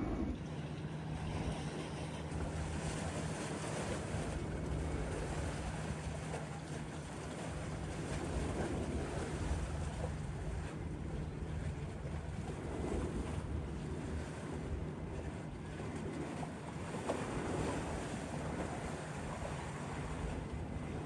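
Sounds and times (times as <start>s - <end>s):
wind rushing over microphone: 0.0s - 1.5s
steady low rumble: 0.0s - 3.2s.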